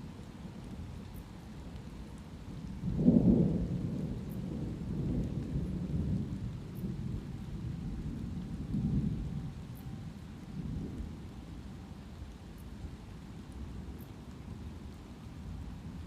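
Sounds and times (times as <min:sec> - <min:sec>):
steady rain: 0:00.0 - 0:16.0
thunder rumbling: 0:02.7 - 0:11.5.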